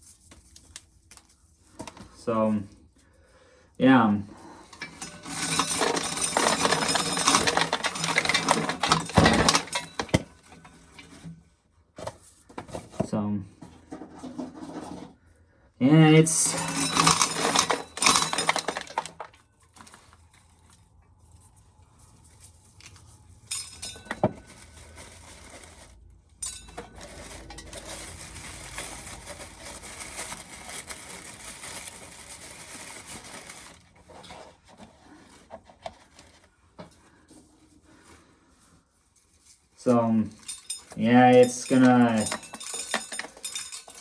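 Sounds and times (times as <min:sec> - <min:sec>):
corn kernels rattling: 0:04.7 - 0:11.1, 0:16.2 - 0:20.2, 0:23.5 - 0:34.5, 0:39.8 - 0:44.0.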